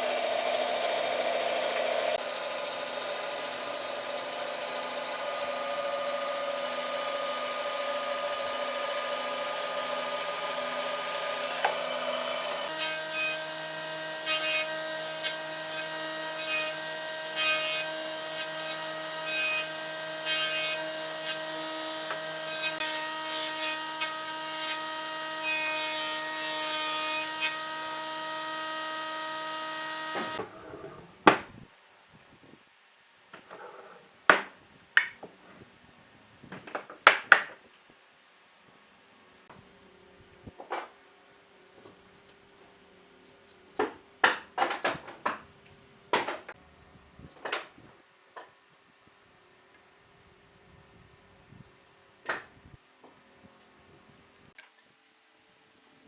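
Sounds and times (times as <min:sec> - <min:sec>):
rasping cutting strokes: 0:00.0 - 0:16.8
power tool motor whine: 0:00.0 - 0:25.4, 0:27.4 - 0:30.4.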